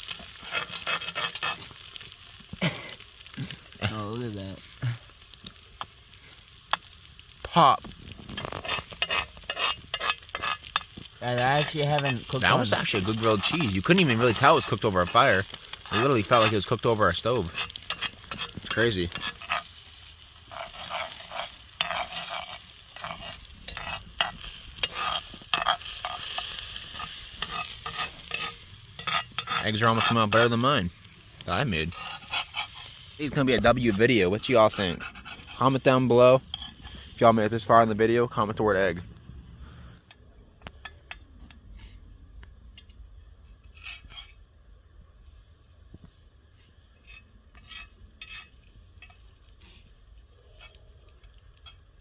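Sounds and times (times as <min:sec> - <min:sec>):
spatula scraping and tapping pan: 0:00.0 - 0:02.1, 0:05.8 - 0:06.0, 0:06.7 - 0:07.0, 0:07.8 - 0:30.7, 0:31.7 - 0:37.1, 0:47.0 - 0:49.3
eggs sizzling in a pan: 0:00.0 - 0:38.1, 0:45.2 - 0:52.0
low steady rumble: 0:36.4 - 0:43.7.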